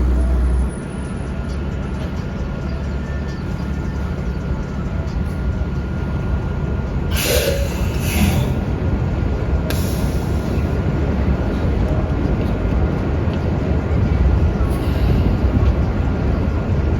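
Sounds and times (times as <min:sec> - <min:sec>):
bus engine rumble: 0:00.0 - 0:16.9
air brake hiss: 0:07.1 - 0:08.6, 0:09.7 - 0:10.6.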